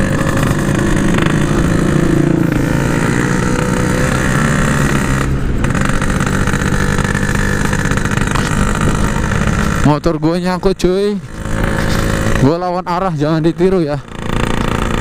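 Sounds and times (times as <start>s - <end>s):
two-stroke motorcycle engine: 0.0s - 15.0s
person talking: 12.3s - 14.1s.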